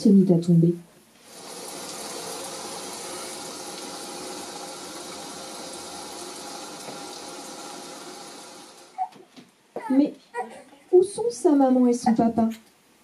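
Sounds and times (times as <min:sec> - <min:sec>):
rain falling: 0:01.2 - 0:09.0.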